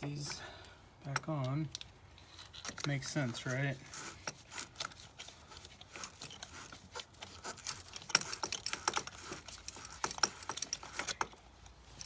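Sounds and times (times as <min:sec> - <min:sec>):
wire brush scrubbing metal: 0:03.2 - 0:11.2.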